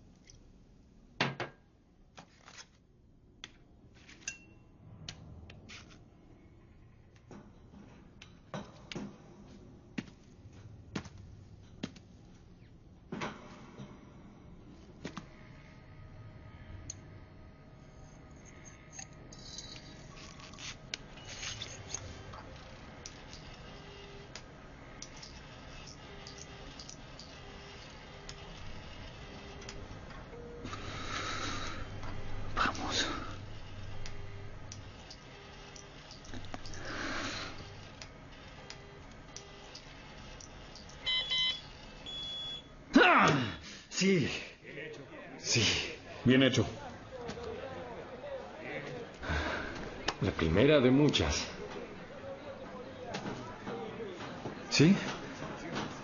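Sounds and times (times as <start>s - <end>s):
low steady hum: 2.9s - 55.2s
glassy ring: 18.0s - 20.5s
glassware and metal clinking: 18.4s - 20.6s.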